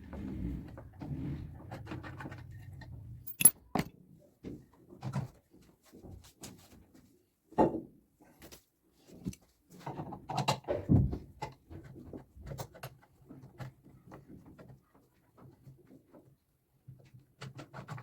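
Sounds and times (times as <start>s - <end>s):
tools clicking and clattering: 3.3s - 3.9s.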